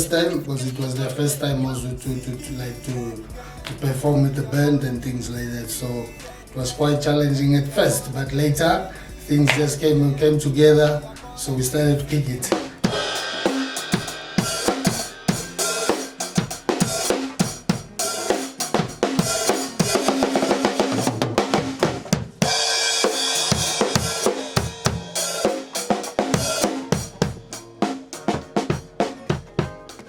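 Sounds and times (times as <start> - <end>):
drum kit playing: 0.0 - 6.8, 7.4 - 30.0
cymbal wash: 12.9 - 20.1.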